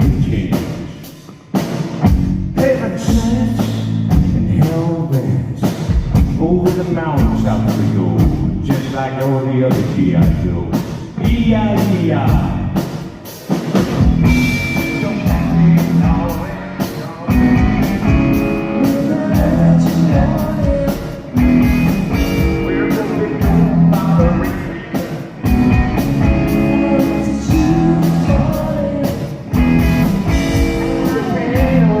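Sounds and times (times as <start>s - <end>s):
rock band playing live: 0.0s - 32.0s
steady drum beat: 0.0s - 32.0s
electric guitar: 11.8s - 32.0s.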